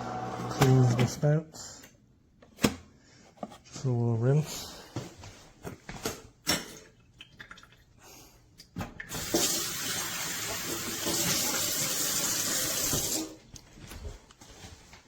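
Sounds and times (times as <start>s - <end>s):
hot water spraying: 9.1s - 13.4s.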